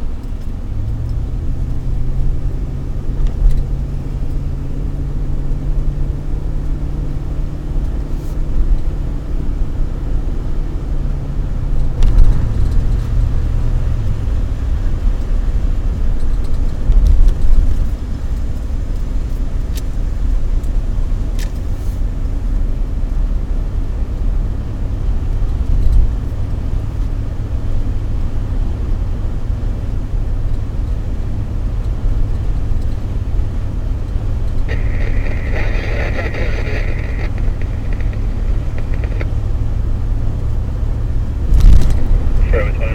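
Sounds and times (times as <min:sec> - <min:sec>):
car engine and road noise: 0:00.0 - 0:42.9
faint clicks: 0:34.1 - 0:39.4.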